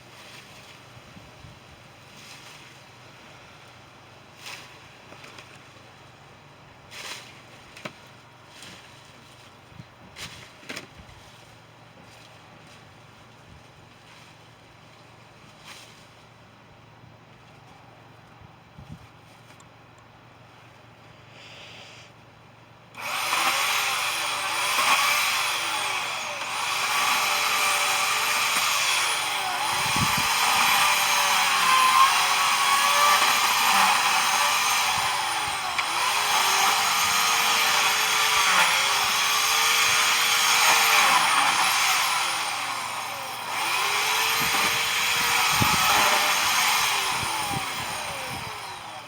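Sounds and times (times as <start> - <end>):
power cutting tool motor: 23.0 - 49.0.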